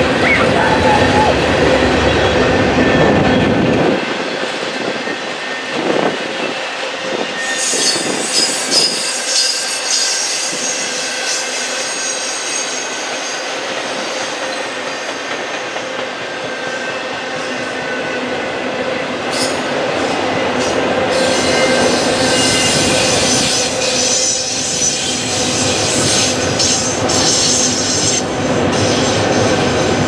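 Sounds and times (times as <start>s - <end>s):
train wheels knocking on rails: 2.0s - 17.9s, 18.8s - 30.0s
high wheel squeal: 7.2s - 15.4s, 21.1s - 29.7s.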